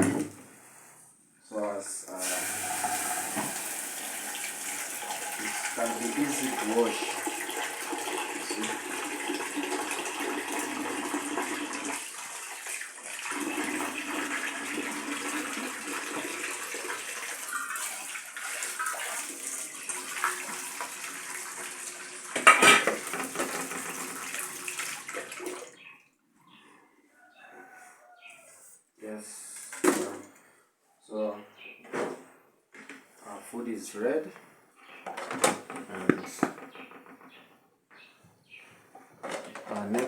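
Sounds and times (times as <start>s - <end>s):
water running into pot: 2.1s - 25.8s
pot clattering: 22.4s - 24.1s.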